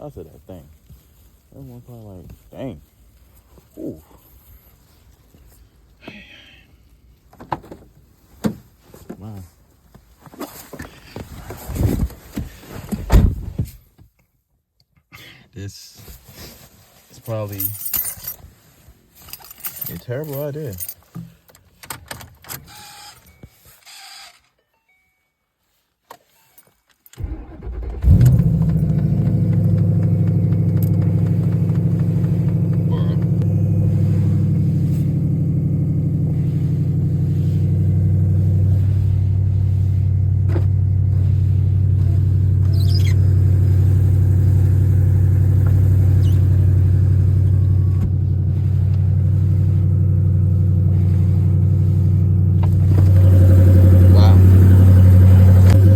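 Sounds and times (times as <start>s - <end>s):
car engine cranking and idling: 27.2s - 55.9s.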